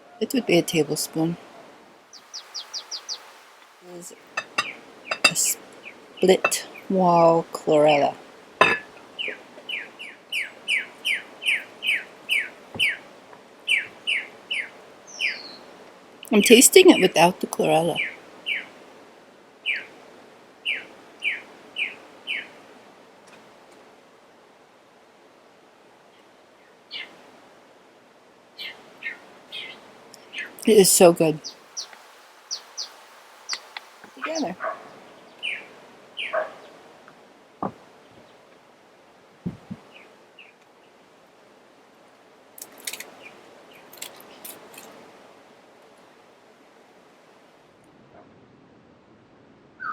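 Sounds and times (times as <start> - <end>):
bird chirping: 2.1 - 7.0, 8.6 - 13.0, 13.7 - 15.7, 28.6 - 36.8
soft thumps: 37.6 - 37.8, 39.4 - 39.9.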